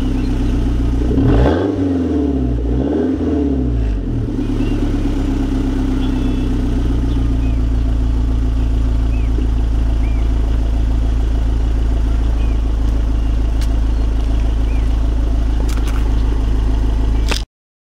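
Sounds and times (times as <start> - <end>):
car engine idling: 0.0 - 17.4.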